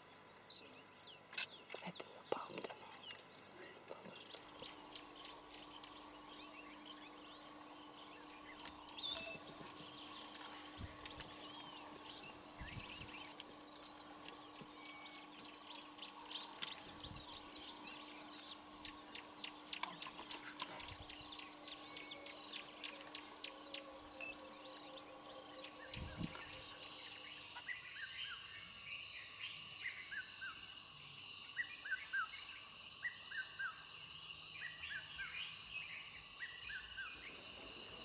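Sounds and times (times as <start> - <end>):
steady low hum: 0.1 - 38.0
birds chirping and whistling: 4.0 - 28.5.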